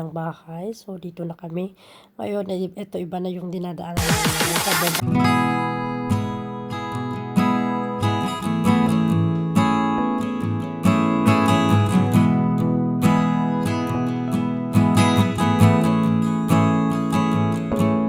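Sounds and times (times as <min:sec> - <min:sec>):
acoustic guitar strumming chords: 0:04.0 - 0:18.0.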